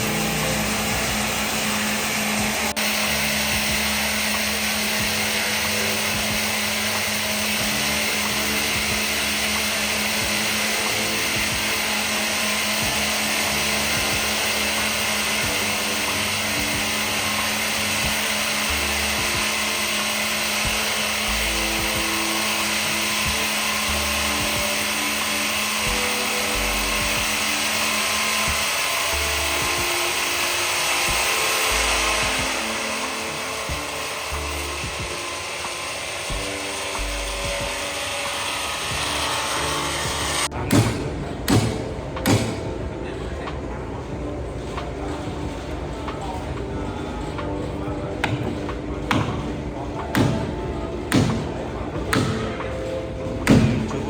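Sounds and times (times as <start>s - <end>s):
power tool running on wood: 0.0s - 54.0s
sharp knock: 40.7s - 42.7s.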